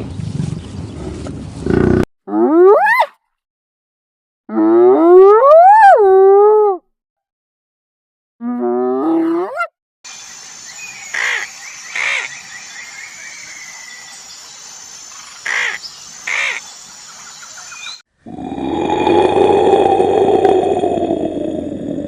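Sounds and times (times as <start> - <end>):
high chirping birdsong: 10.1 - 18.1
harsh bird calls: 10.7 - 14.1, 15.1 - 19.4.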